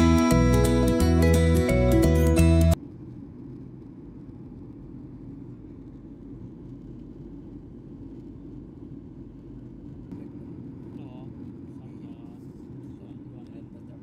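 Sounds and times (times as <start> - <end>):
background music: 0.0 - 2.8
vehicle engine and air rumble: 0.0 - 14.0.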